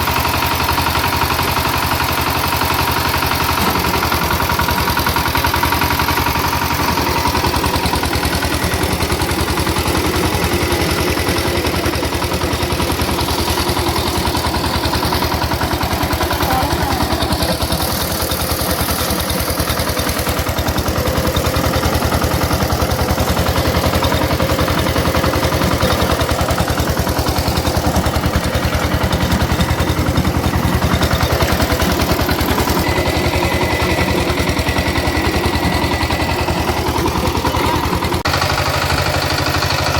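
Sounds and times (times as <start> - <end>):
diesel tiller engine running: 0.0 - 39.9.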